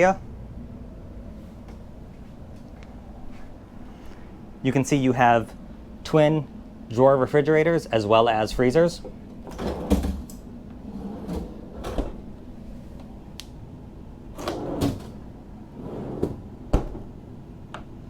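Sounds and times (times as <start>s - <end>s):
refrigerator drawers thudding: 9.4s - 12.3s, 14.4s - 15.3s.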